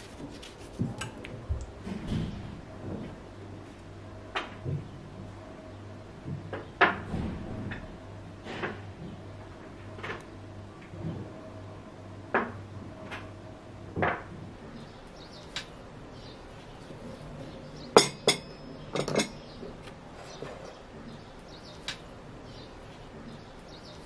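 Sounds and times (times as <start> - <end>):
dishes and utensils clinking: 18.0 - 19.5.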